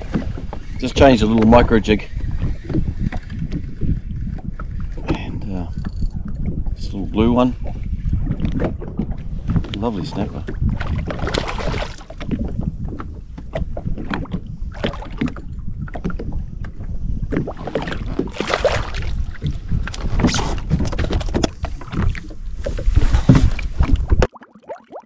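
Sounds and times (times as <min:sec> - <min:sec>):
knocks and splashes: 0:00.0 - 0:00.7, 0:07.7 - 0:25.0
wind buffeting microphone: 0:00.0 - 0:24.3
water slapping against hull: 0:00.0 - 0:25.0.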